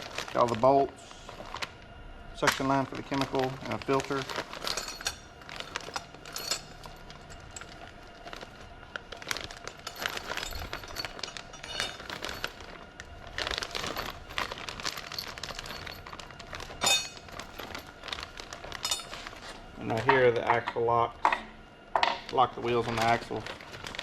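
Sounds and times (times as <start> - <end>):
plastic packaging crinkling: 0.0 - 20.4, 22.2 - 24.0
small metal parts clinking: 2.4 - 21.4.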